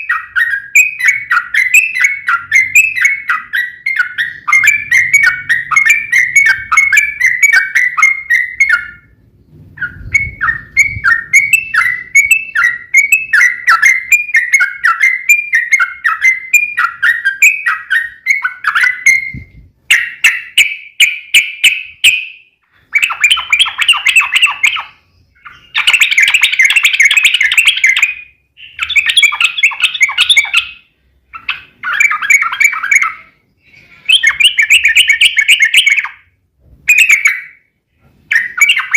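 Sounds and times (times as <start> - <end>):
bird chirping and chattering: 0.0 - 37.7, 38.3 - 38.9.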